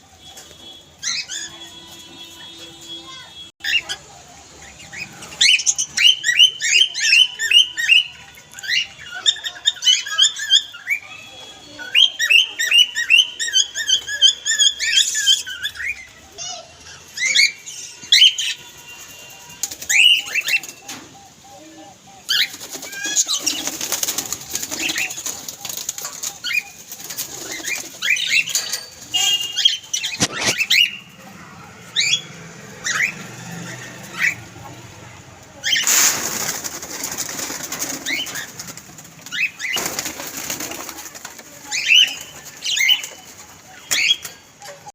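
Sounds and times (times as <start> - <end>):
noisy rustling: 33.3 - 44.5.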